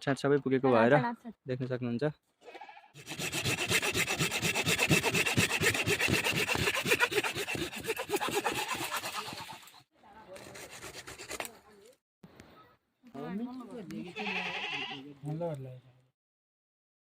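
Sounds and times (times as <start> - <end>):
patchy scraping: 3.0 - 12.0
rasping strokes on branches: 3.0 - 12.0.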